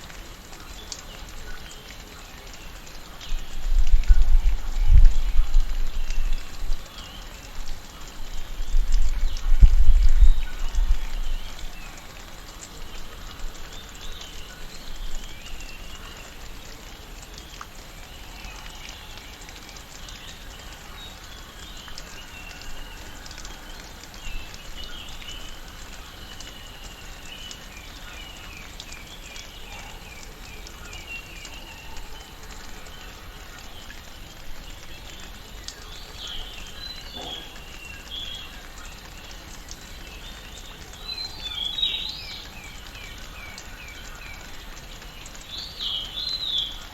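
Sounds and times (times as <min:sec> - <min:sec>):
birds chirping and calling: 0:34.7 - 0:39.2.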